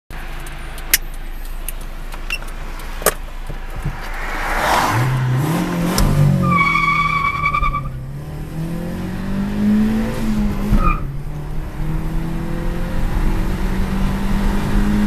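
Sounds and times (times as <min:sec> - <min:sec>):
car engine idling and revving: 0:00.1 - 0:15.0
sharp clicks: 0:00.2 - 0:04.2
tyres squealing: 0:06.4 - 0:08.0.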